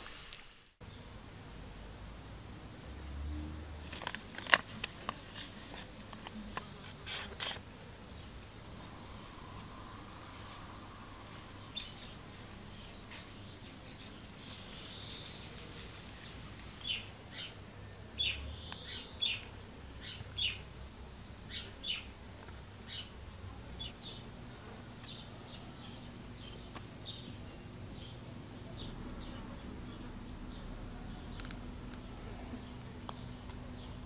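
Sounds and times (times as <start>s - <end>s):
small bird chirping: 8.1s - 17.6s, 18.2s - 20.7s, 23.8s - 34.0s
sharp clicks: 31.2s - 32.1s.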